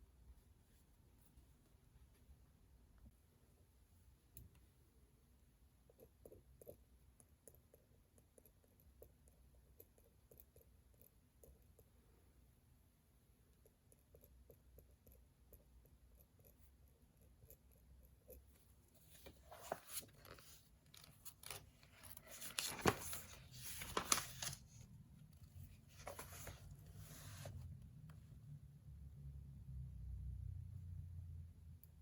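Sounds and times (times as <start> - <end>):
paper rustling and tearing: 19.1 - 24.8.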